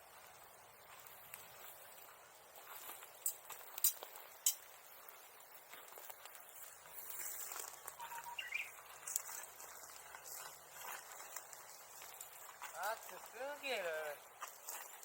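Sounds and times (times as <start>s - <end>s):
bonfire crackling: 0.2s - 15.0s
brief chirp: 8.0s - 8.7s.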